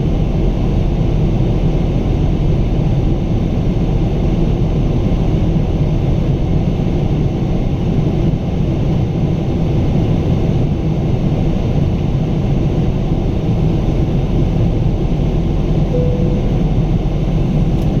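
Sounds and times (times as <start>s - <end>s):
jet engines rumbling in cabin: 0.0s - 18.0s.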